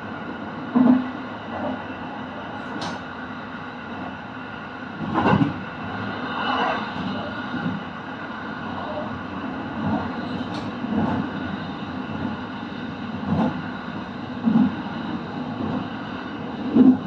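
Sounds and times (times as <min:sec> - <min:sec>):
train rumbling along track: 0:00.0 - 0:17.0
brief click: 0:02.7 - 0:03.0.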